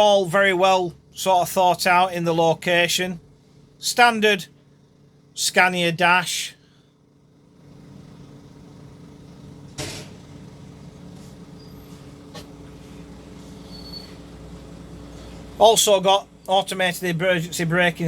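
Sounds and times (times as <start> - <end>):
bus engine hum: 7.5 - 18.0.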